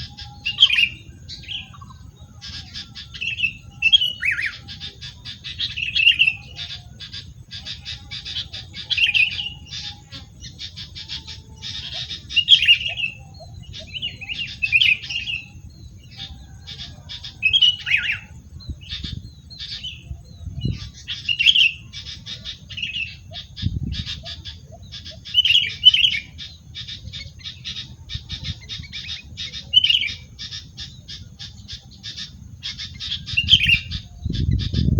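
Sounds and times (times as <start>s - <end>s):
dry chatter of ticks: 0.0s - 34.9s
bird giving harsh calls: 16.2s - 34.9s.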